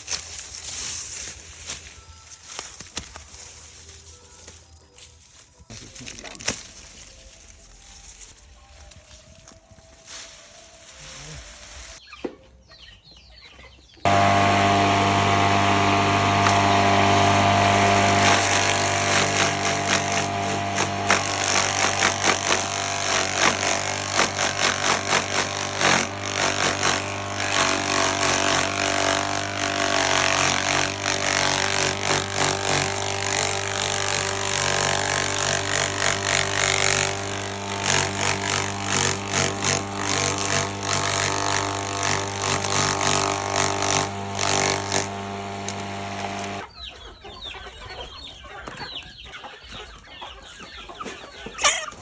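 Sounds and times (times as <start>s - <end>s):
motor-driven machine humming: 14.1s - 46.6s.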